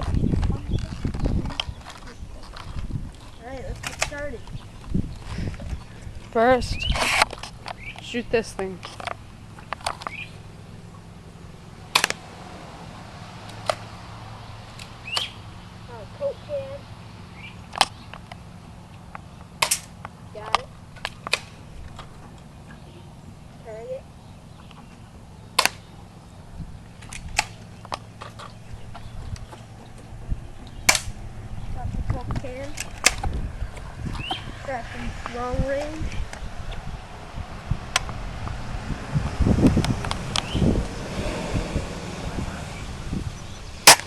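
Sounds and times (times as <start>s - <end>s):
airsoft gun cracks: 11.9s - 12.2s, 19.6s - 19.9s, 25.6s - 25.9s, 30.9s - 31.2s.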